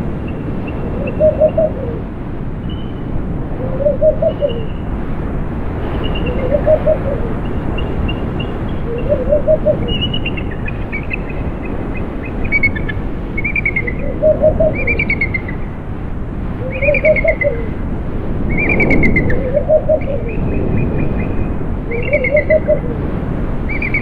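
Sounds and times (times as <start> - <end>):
wind rushing: 0.0 - 24.0
bird low hooting call: 0.3 - 2.1, 3.6 - 4.8, 6.1 - 7.6, 8.7 - 15.7, 16.6 - 17.8, 18.5 - 23.0.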